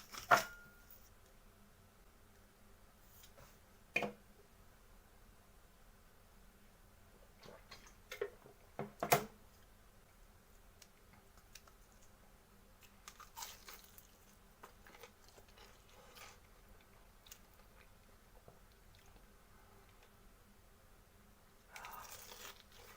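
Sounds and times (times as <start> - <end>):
crunching fried chicken: 12.8 - 17.9, 21.7 - 22.9
quiet chewing: 12.8 - 20.2, 21.6 - 22.9.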